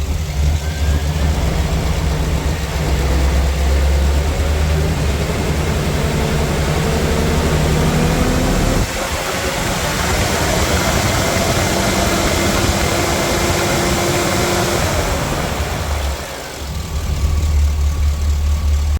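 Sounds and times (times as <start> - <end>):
engine running: 0.0 - 18.9.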